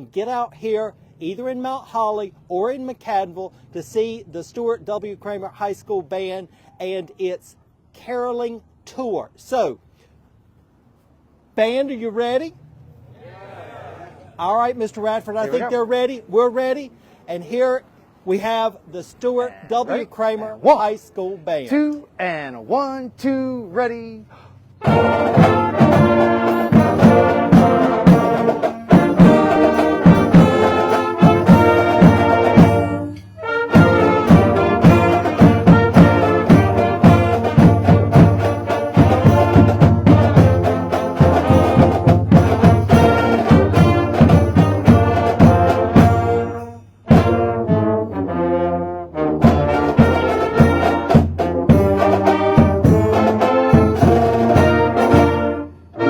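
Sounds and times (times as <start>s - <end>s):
brass chords: 24.7s - 56.0s
marching band playing: 24.7s - 56.0s
drum hits: 24.8s - 47.6s, 49.4s - 55.5s.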